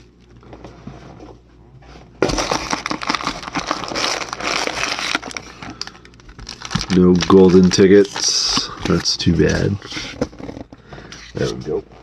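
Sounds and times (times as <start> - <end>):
packing peanuts rustling in a box: 2.2 - 9.8.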